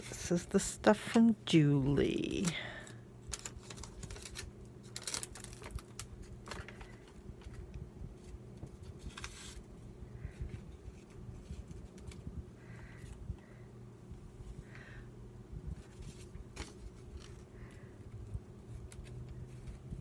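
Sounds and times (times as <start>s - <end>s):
low steady hum: 0.0s - 20.0s
paper rustling: 3.2s - 12.2s, 15.8s - 17.9s.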